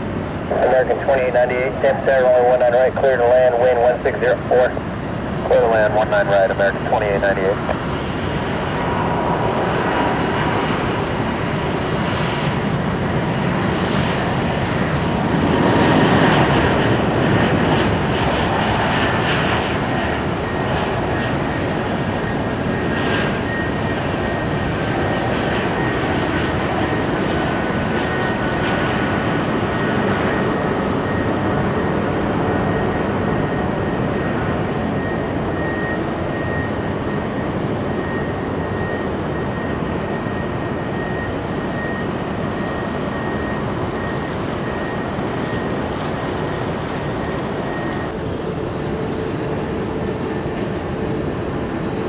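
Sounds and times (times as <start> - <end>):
jet engines running: 0.0 - 52.0
high whine: 37.1 - 48.2.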